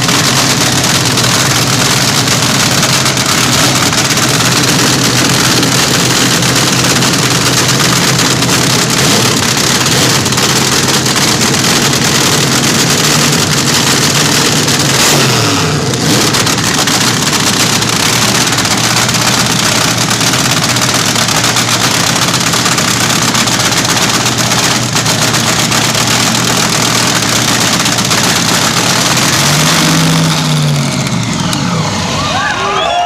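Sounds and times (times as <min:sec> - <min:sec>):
drag racer engine crackling: 0:00.0 - 0:32.8.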